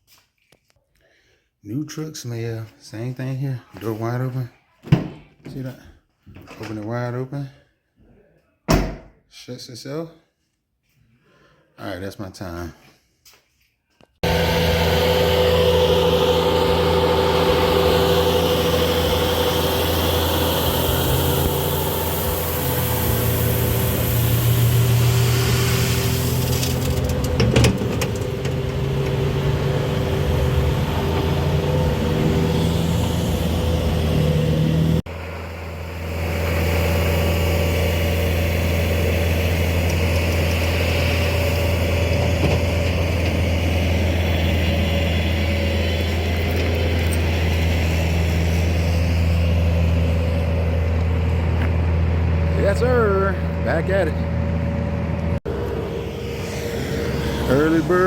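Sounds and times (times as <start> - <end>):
truck engine running: 14.2 - 58.0.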